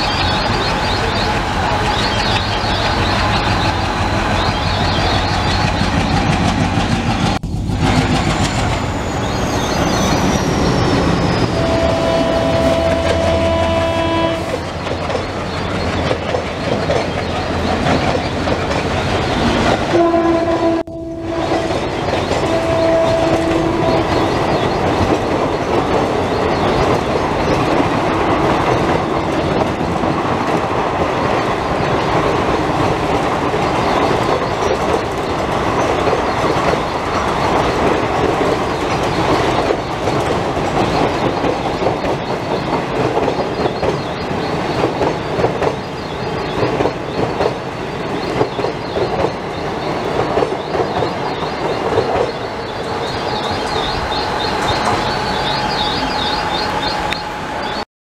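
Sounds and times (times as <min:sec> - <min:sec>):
train rumble and wheel clatter: 0:00.0 - 0:57.8
train horn: 0:11.4 - 0:14.6, 0:19.9 - 0:24.4.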